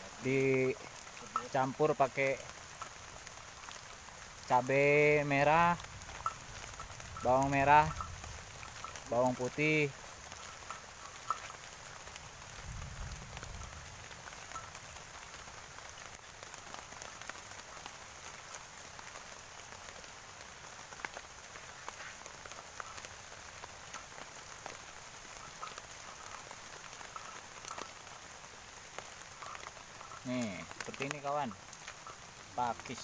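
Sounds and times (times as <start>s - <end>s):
drops ticking: 0.0s - 33.0s
steady rain falling: 0.0s - 33.0s.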